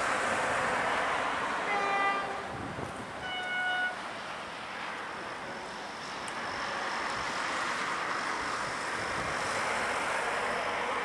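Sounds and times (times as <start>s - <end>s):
train rushing past on rails: 0.0s - 11.0s
train horn: 1.6s - 2.5s, 3.2s - 4.0s.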